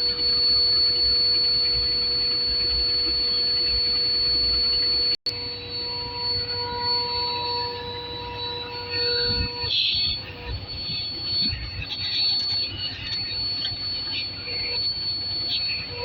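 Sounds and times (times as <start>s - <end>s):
air leak high whistle with hiss: 0.0s - 16.0s
lower whistling tones: 0.0s - 16.0s.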